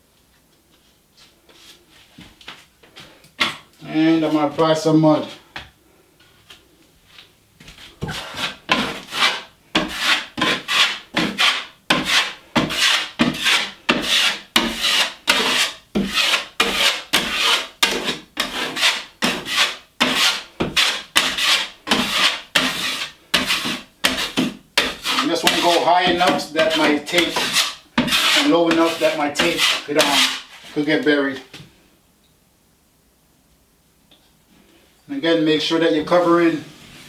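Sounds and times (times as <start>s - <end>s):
drywall knife scraping: 8.0s - 31.1s, 36.1s - 37.0s.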